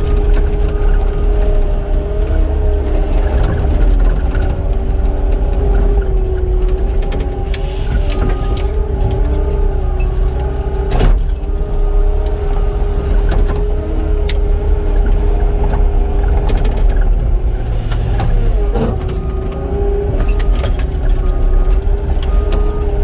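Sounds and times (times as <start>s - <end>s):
diesel engine under hydraulic load: 0.0s - 23.0s.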